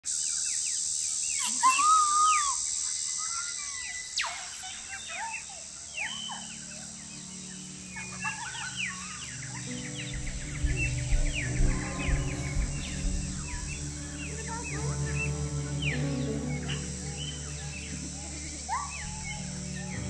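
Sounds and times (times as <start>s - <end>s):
birds calling and chirping: 0.0s - 20.0s
steady high hiss: 0.0s - 20.0s
soft music with low notes: 6.0s - 20.0s.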